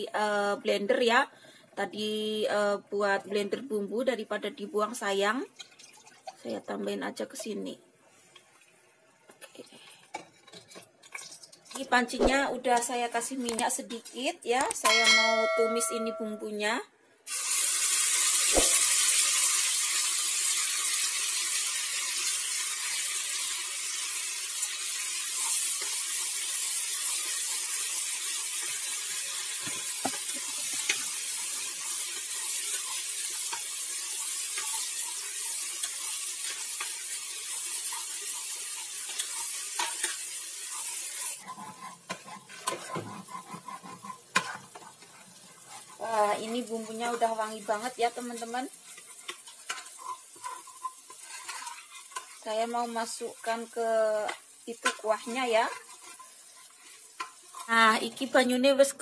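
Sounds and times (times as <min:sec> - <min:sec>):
paste sizzling in hot oil: 0:17.3 - 0:59.0
metal spoon scraping pot: 0:37.9 - 0:46.0, 0:48.4 - 0:52.5, 0:54.8 - 0:57.7.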